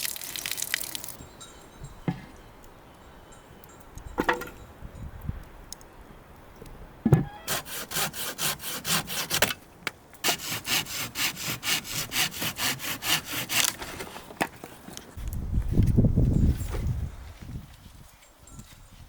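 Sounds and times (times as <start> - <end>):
rhythmic rasping strokes on wood: 7.5 - 9.4, 10.2 - 13.6.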